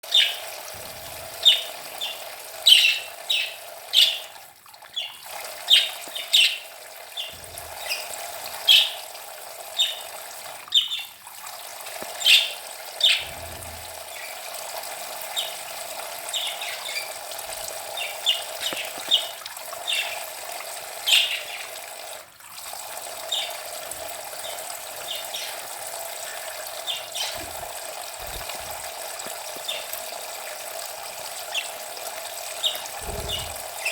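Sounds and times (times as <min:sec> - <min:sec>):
water spraying: 0:00.7 - 0:02.9, 0:27.2 - 0:29.9, 0:33.0 - 0:33.9
budgerigars chirping: 0:33.0 - 0:33.9.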